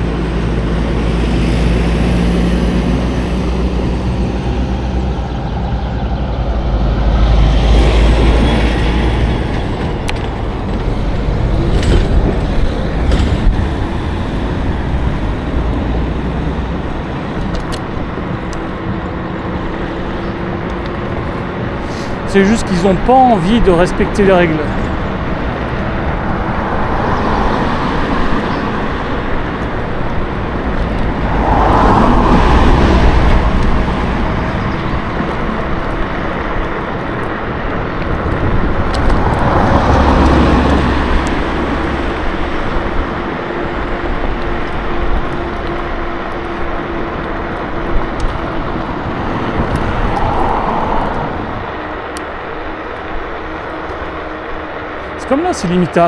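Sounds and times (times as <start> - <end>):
road traffic: 0.0 - 56.0
rushing air: 21.7 - 43.2, 48.9 - 53.5.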